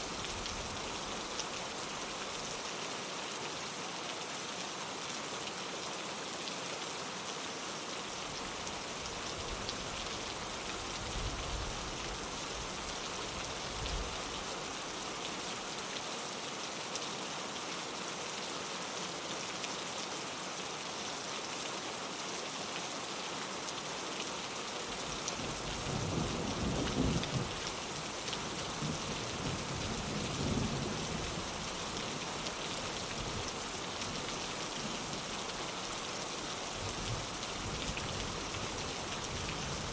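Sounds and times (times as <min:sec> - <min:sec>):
rain on a window: 0:00.0 - 0:39.9
thunder rolling: 0:25.8 - 0:27.6.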